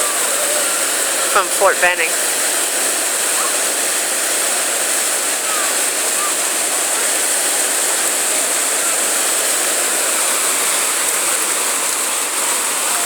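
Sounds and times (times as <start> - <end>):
whitewater rapids rushing: 0.0 - 13.0.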